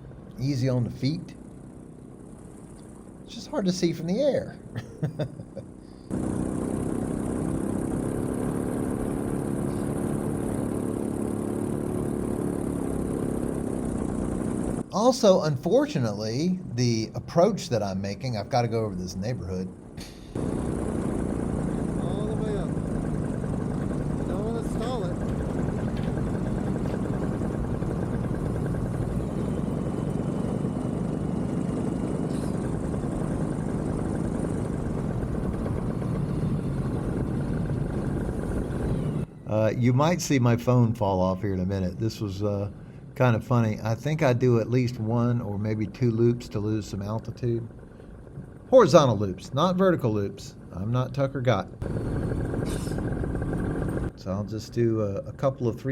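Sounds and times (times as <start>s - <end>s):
paramotor engine droning: 0.0s - 55.9s.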